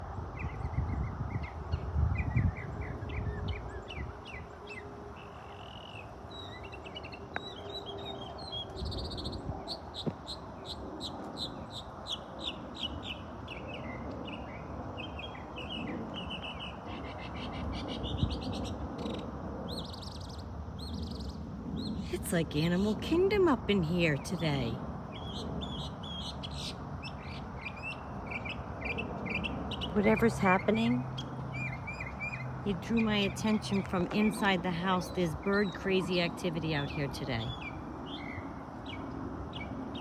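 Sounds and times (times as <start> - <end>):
birds chirping and calling: 24.1 - 40.0.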